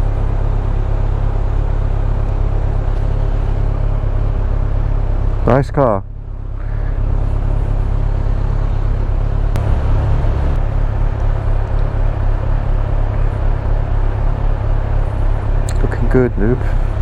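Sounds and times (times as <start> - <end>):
motorcycle engine rumble: 9.6 - 16.0.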